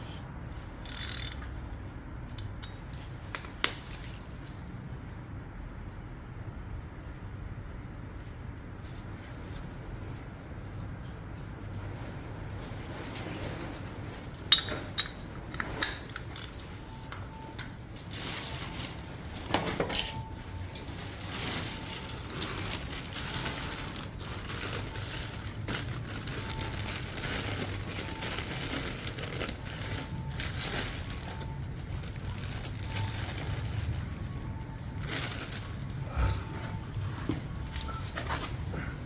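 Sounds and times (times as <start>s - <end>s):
steady low hum: 20.1s - 39.0s.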